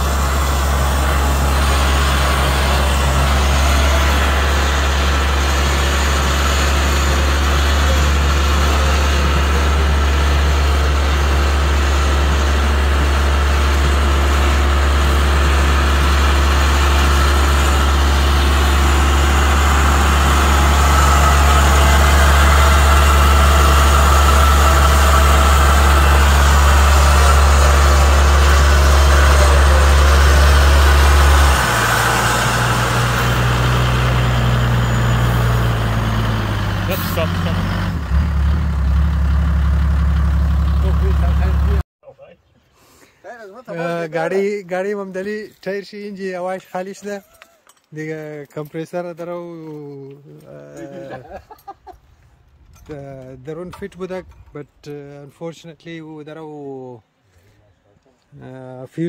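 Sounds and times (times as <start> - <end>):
vehicle engine low drone: 0.0 - 41.8
higher-pitched hum: 10.7 - 41.8.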